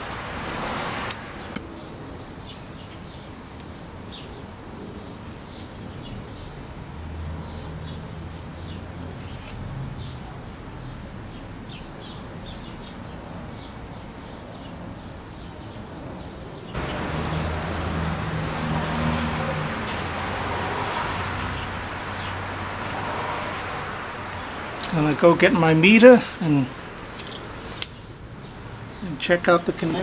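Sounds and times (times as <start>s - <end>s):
bird chirping: 7.4s - 15.8s, 16.7s - 30.0s.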